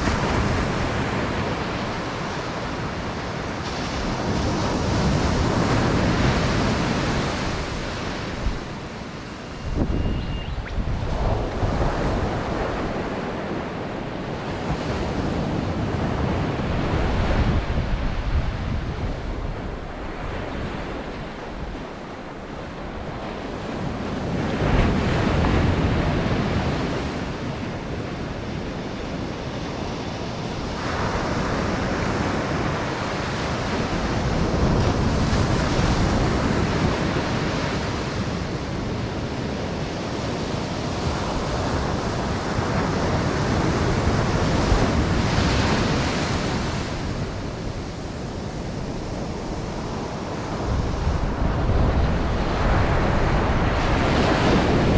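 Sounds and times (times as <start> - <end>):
ocean surf breaking: 0.0 - 54.9
wind buffeting microphone: 0.0 - 54.9.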